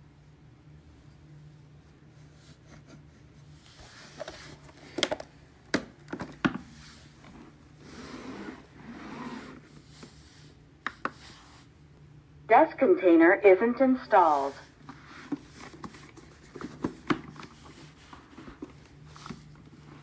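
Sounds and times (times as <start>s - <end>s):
plastic parts rubbing and scraping: 14.3s - 20.0s.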